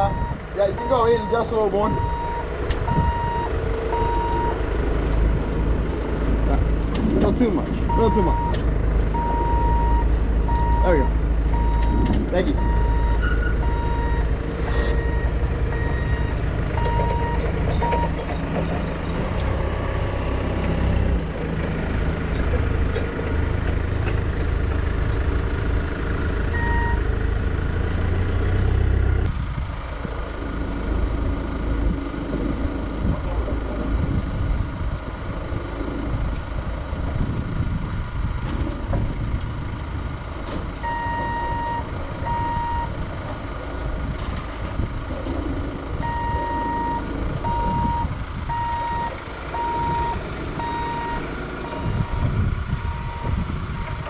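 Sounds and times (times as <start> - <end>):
vehicle reversing alarm beeping: 0.0 - 4.6, 7.9 - 19.2, 26.5 - 27.1, 40.8 - 43.0, 46.0 - 54.0
engine running low rumble: 0.0 - 54.0.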